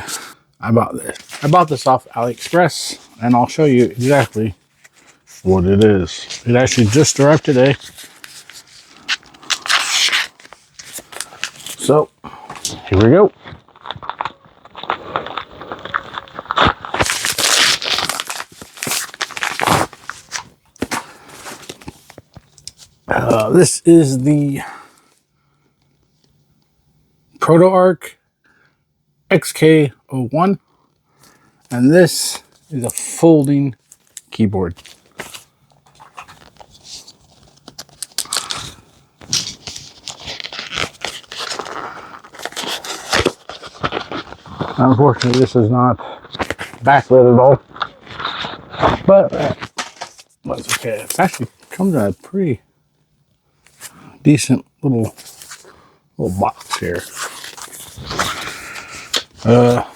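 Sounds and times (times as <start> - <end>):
packaging tearing and rustling: 1.0 - 23.5, 33.8 - 45.6, 46.2 - 52.2, 55.1 - 59.9.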